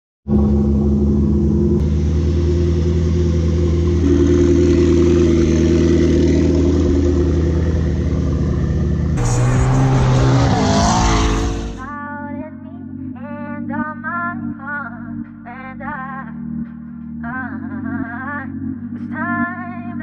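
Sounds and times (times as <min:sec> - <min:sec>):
car driving at speed: 0:00.3 - 0:11.9
car engine idling: 0:00.3 - 0:11.9.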